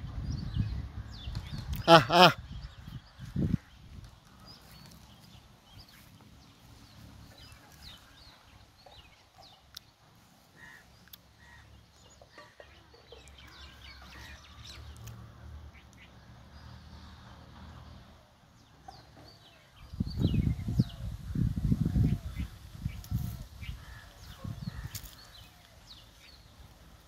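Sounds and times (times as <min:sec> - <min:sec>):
faint bird calls: 0:01.7 - 0:03.8, 0:09.8 - 0:14.6.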